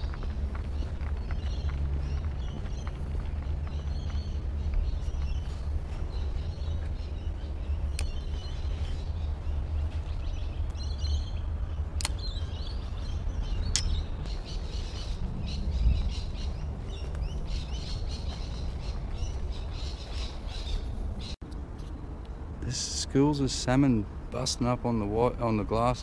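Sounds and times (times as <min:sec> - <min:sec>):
birds chirping and calling: 0:00.0 - 0:21.4
low rumble: 0:00.0 - 0:21.4
sharp clicks: 0:12.0 - 0:12.3.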